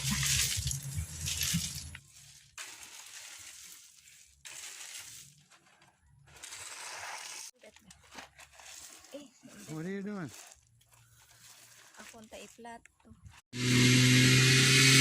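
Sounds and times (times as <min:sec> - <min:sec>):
gravel scraping on metal: 0:01.8 - 0:12.3.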